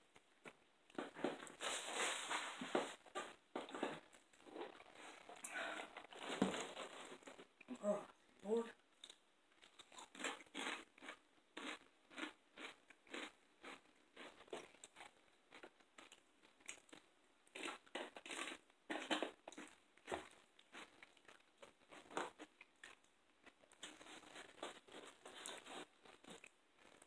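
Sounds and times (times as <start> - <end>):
crunching and chewing chips: 9.0 - 27.0.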